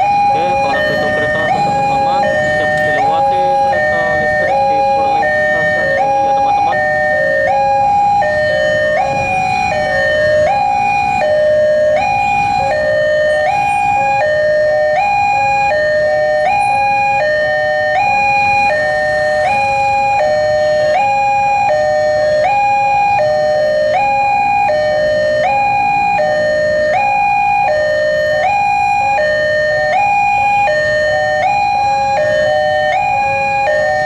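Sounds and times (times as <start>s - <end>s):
level crossing two-tone alarm: 0.0s - 34.0s.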